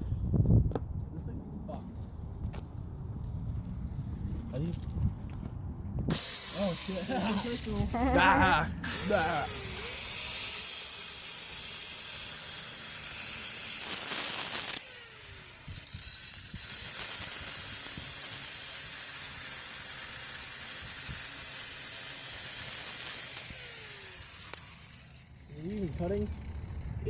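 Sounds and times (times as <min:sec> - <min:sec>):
power tool cutting steel: 0:06.1 - 0:27.0.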